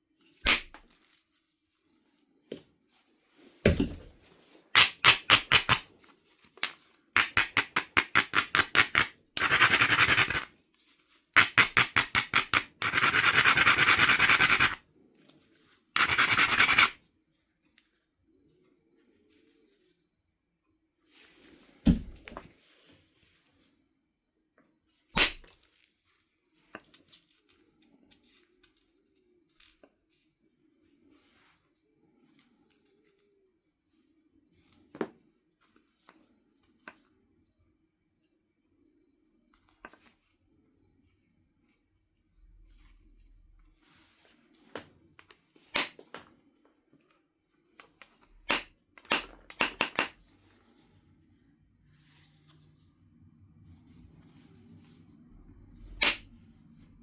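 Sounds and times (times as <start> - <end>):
stone striking flint: 4.8 - 5.9, 21.8 - 22.4, 56.0 - 56.3
clicks of stone on tool: 7.2 - 10.5, 11.4 - 14.8.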